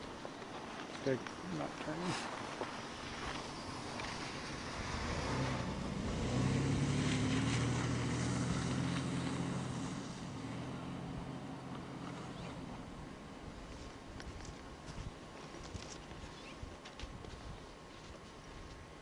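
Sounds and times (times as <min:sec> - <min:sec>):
vehicle engine humming: 0:00.0 - 0:14.9.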